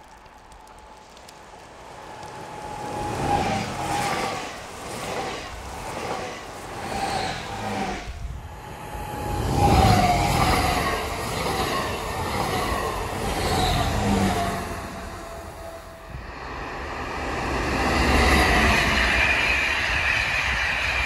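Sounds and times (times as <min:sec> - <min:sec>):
electric train motor whine: 0:06.7 - 0:21.0.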